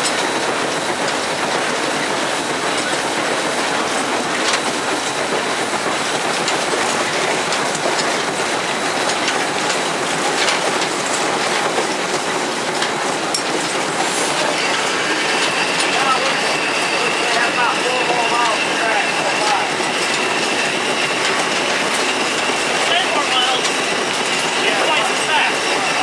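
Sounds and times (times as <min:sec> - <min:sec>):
wheels clicking on track: 0:00.0 - 0:26.0.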